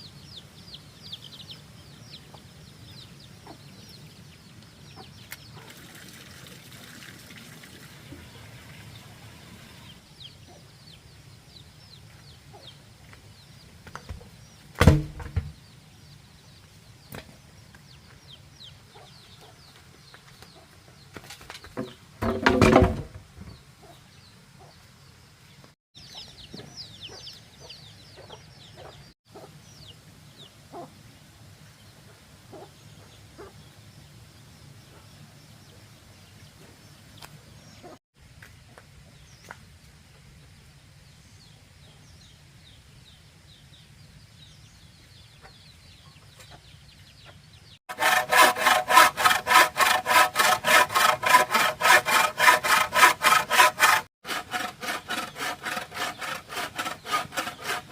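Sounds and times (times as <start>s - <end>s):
chickens and birds chirping: 0.0s - 57.9s
hand saw cutting bamboo: 47.9s - 57.9s.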